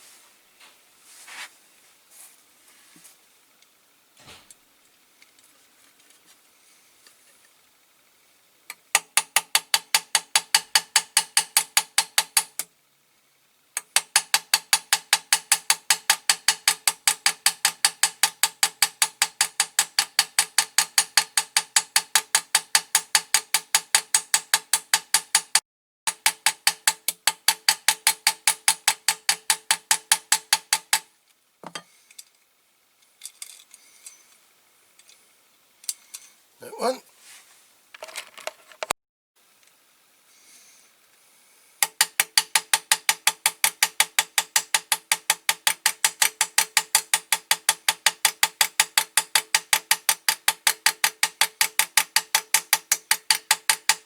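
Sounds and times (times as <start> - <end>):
rapid metal-on-metal tapping: 8.9 - 12.7, 13.8 - 31.1, 41.8 - 54.0.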